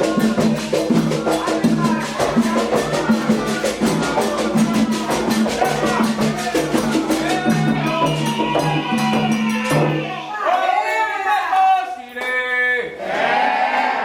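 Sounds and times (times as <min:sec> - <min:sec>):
hand drums and percussion: 0:00.0 - 0:10.3
voices singing a chant: 0:00.0 - 0:11.4, 0:13.0 - 0:14.0.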